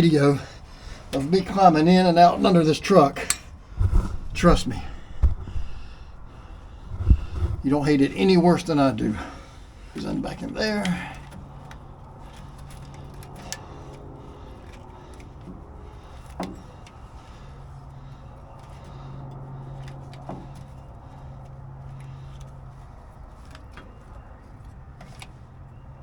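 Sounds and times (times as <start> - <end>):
steady low hum: 0.0 - 20.1
air lines clicking into fittings: 2.4 - 8.8, 9.9 - 25.8.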